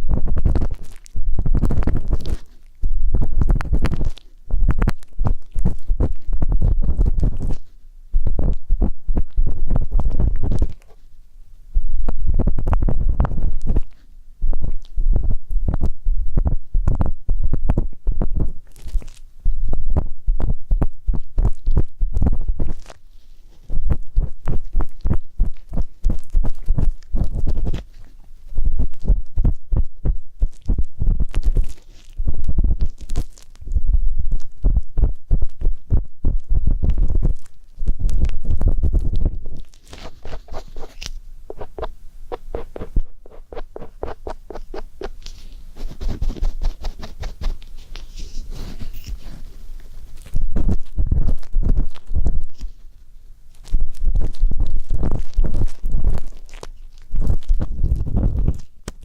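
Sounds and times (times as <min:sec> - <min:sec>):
ear pick scraping and tapping: 0:00.0 - 0:11.1, 0:12.0 - 0:19.1, 0:19.7 - 0:52.9
deep muffled thumps: 0:33.7 - 0:40.8, 0:41.5 - 0:45.2
ear pick scraping: 0:34.6 - 0:59.0.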